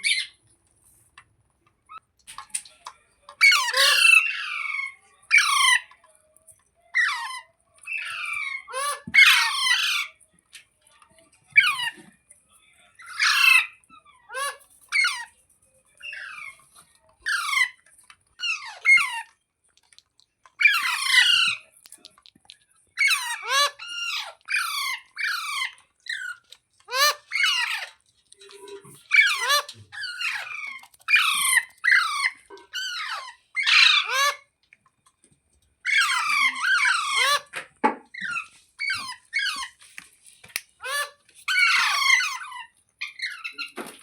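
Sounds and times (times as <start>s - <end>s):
parakeet screeching calls: 3.4s - 5.9s, 7.0s - 10.2s, 13.0s - 15.3s, 17.2s - 17.8s, 20.6s - 21.6s, 23.0s - 28.0s, 29.0s - 34.5s, 35.8s - 37.5s, 38.1s - 39.8s, 40.8s - 43.6s.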